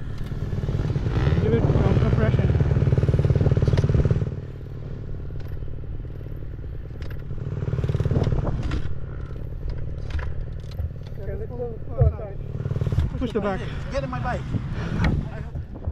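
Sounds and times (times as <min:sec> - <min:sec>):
dirt bike engine running: 0:00.0 - 0:15.9
clicks and clatter: 0:08.0 - 0:11.3.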